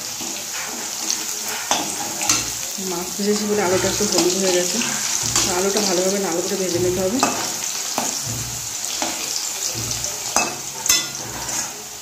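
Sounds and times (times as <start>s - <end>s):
potato wedges sizzling in oil: 0.0s - 12.0s
spatula scraping and knocking pan: 0.0s - 12.0s.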